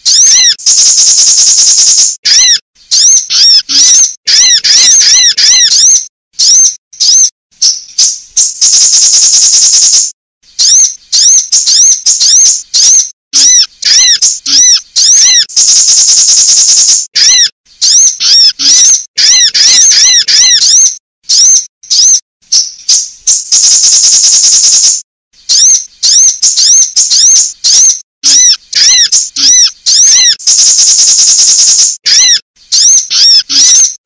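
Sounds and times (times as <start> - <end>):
buzzy rattling bird trill: 0.0 - 34.0
sharp high bird chip notes: 10.6 - 34.0.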